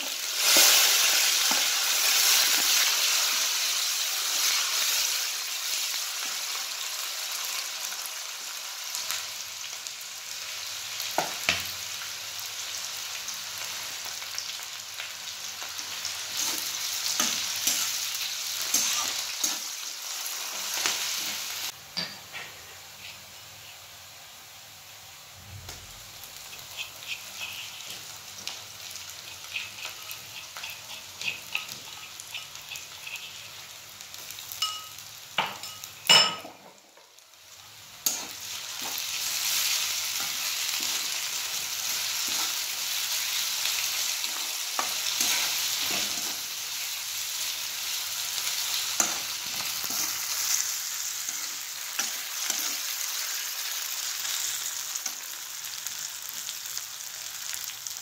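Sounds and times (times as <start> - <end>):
onions sizzling in oil: 0.0 - 58.0
spatula scraping pan: 26.4 - 33.6, 44.0 - 46.5.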